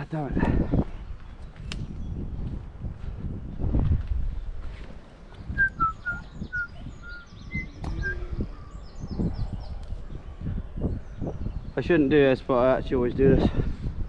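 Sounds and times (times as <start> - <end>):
songbird whistling: 5.4 - 9.8.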